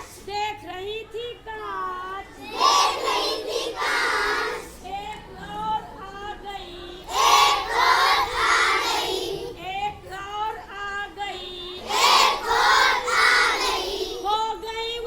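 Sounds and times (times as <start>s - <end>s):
children singing together: 2.4s - 4.8s, 7.0s - 9.6s, 11.7s - 14.6s.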